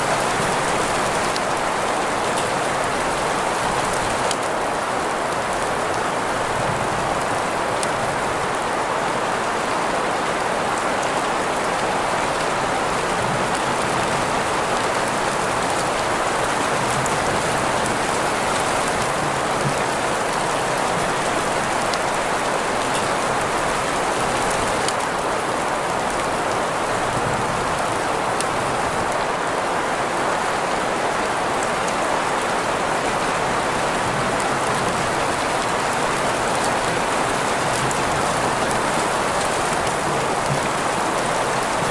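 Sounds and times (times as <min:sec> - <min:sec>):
steady rain hiss: 0:00.0 - 0:41.9.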